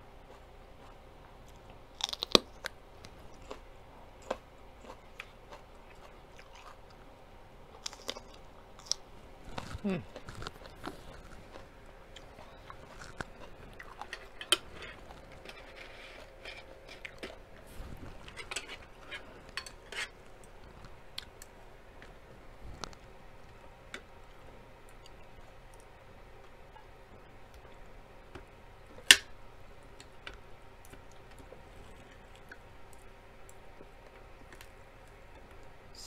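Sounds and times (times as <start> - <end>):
person chewing: 0.2 - 7.0, 7.7 - 23.6, 24.8 - 26.9
cutlery scraping plate: 14.0 - 17.0, 18.2 - 20.2.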